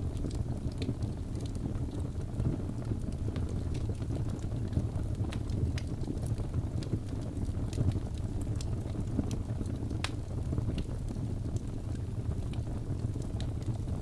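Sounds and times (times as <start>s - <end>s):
fire crackling: 0.0s - 14.0s.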